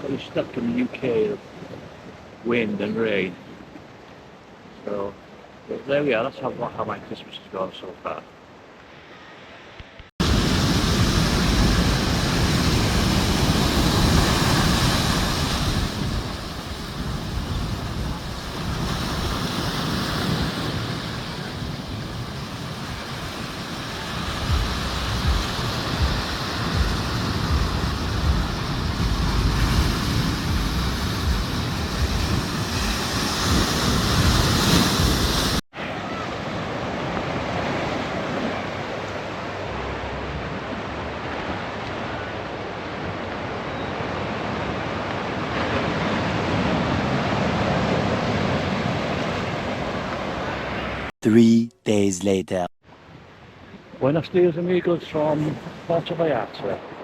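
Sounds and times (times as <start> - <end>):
wind buffeting microphone: 10.2 - 35.6
ocean surf breaking: 10.2 - 41.8.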